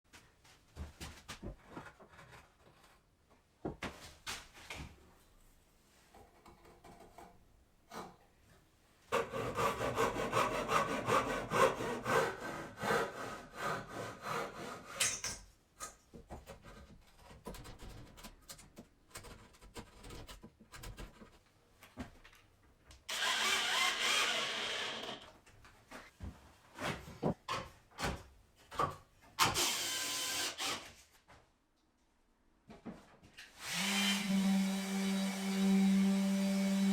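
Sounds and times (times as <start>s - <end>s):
rasping sawing strokes on wood: 9.2s - 15.0s.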